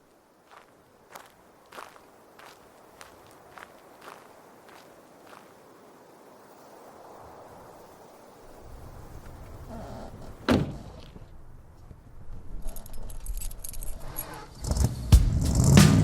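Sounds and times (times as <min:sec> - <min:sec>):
heavy drum-like hits and beat: 0:15.0 - 0:16.0.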